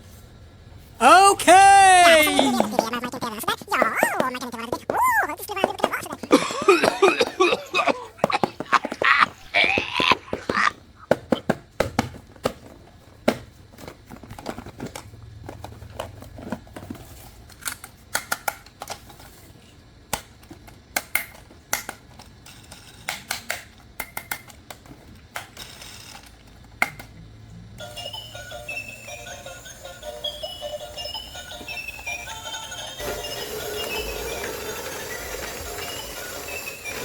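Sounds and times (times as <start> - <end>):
music: 27.8 - 37.0.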